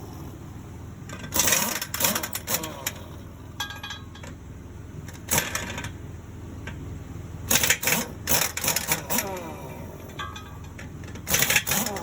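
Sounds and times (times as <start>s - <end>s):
low engine hum: 0.0s - 12.0s
metallic clanking and rattling: 1.0s - 4.4s, 10.0s - 12.0s.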